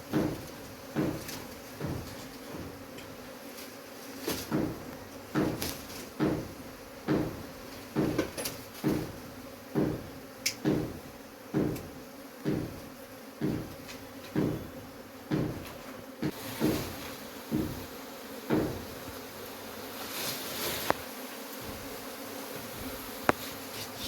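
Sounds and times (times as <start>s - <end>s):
honeybees buzzing: 0.0s - 24.0s
dull knocks: 0.1s - 3.0s, 4.4s - 12.8s, 13.4s - 19.0s.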